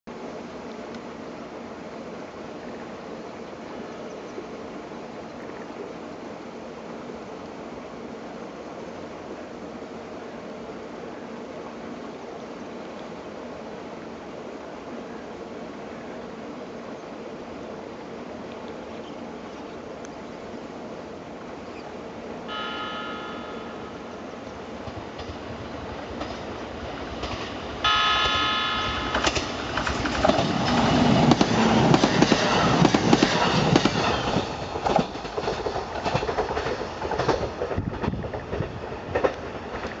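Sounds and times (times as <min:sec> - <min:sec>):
train horn blasts: 0:22.5 - 0:24.3, 0:27.8 - 0:29.6
train wheels rumbling over rails: 0:22.5 - 0:40.0.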